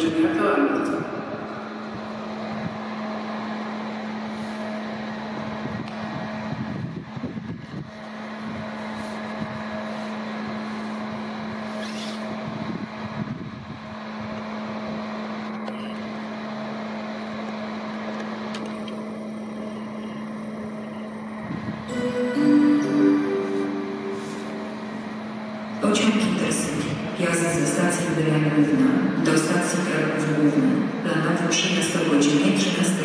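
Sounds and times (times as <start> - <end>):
train electric hum: 0.0 - 33.0
public-address chime: 19.7 - 33.0.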